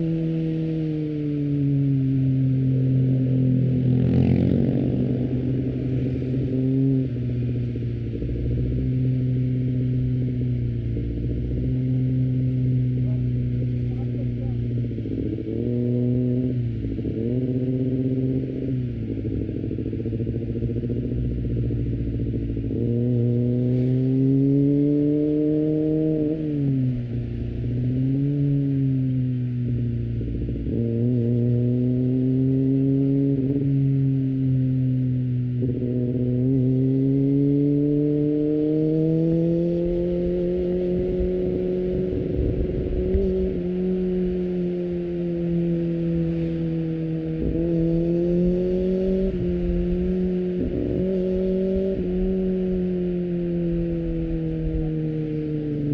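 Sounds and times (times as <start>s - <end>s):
motorcycle engine while riding: 0.0s - 55.9s
light wind noise: 38.8s - 55.9s.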